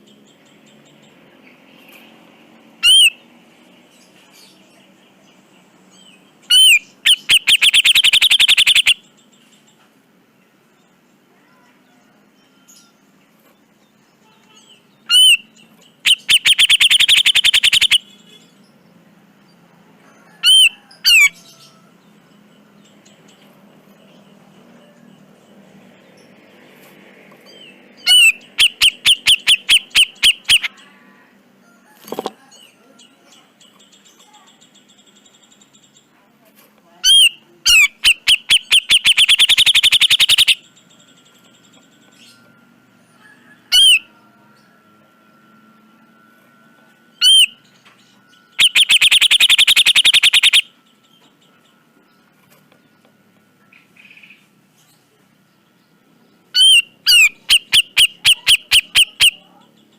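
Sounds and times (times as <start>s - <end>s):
harsh bird call: 2.8s - 3.2s, 6.4s - 9.0s, 14.6s - 18.2s, 28.0s - 31.1s, 37.0s - 40.6s, 47.2s - 47.6s, 48.6s - 50.8s, 56.6s - 59.4s
bird rattling call: 6.5s - 9.0s, 16.1s - 18.0s, 48.6s - 50.6s
bulbul calling sharp notes: 6.5s - 9.1s, 15.0s - 18.2s, 28.0s - 30.7s, 37.0s - 40.7s, 48.6s - 50.8s, 56.6s - 59.5s
faint rapid twittering: 7.0s - 9.0s, 16.1s - 18.0s, 38.0s - 42.6s, 45.0s - 51.8s.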